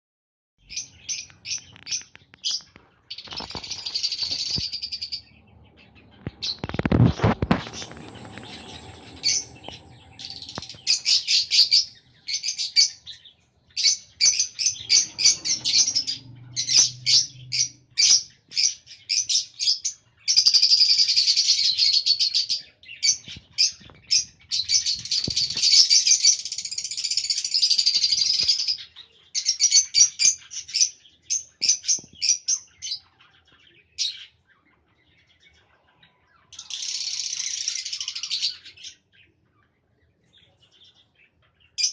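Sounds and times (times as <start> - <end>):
lovebirds chirping and chattering: 0.6 - 41.9.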